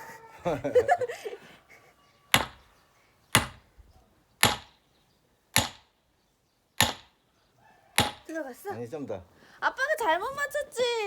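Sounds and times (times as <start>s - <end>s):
splitting tool striking log: 2.3s - 2.6s, 3.4s - 3.7s, 4.4s - 4.8s, 5.5s - 5.9s, 6.8s - 7.2s, 8.0s - 8.3s.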